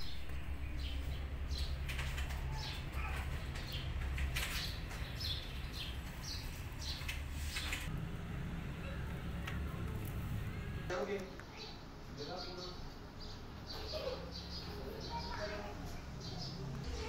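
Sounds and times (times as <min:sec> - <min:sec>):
small birds chirping: 0:00.0 - 0:07.9, 0:08.8 - 0:17.0
steady low rumble: 0:07.9 - 0:10.9.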